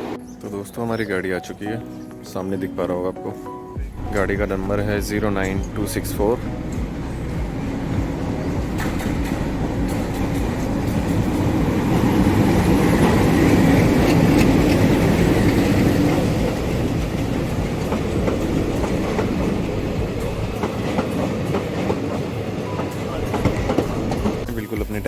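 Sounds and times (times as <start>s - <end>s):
train wheels clicking on rail joints: 5.4s - 24.5s.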